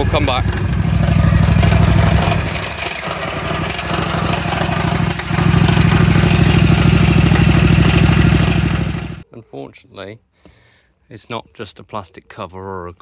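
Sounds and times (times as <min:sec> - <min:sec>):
mower engine idling: 0:00.0 - 0:09.2.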